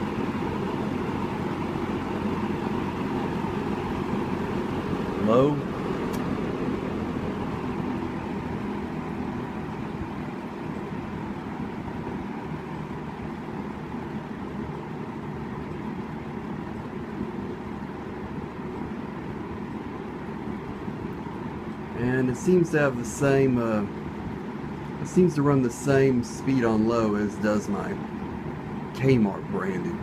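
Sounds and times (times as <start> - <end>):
box fan running: 0.0 - 30.0.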